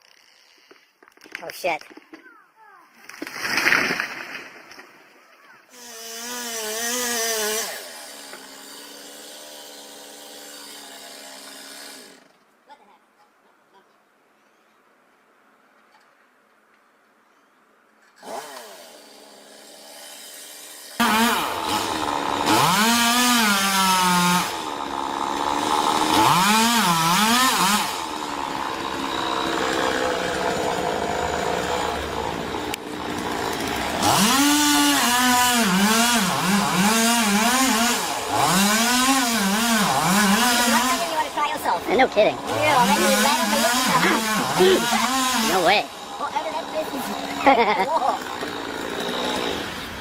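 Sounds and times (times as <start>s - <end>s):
chainsaw revving: 5.7s - 12.3s, 18.2s - 50.0s.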